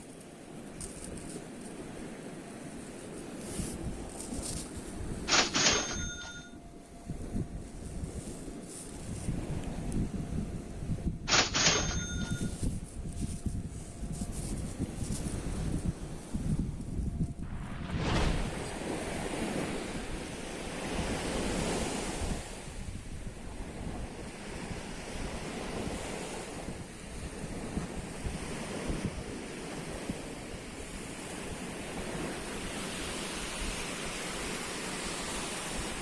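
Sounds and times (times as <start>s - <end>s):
wind buffeting microphone: 6.0s - 11.3s, 12.0s - 36.0s
sea waves washing onto shore: 17.5s - 36.0s.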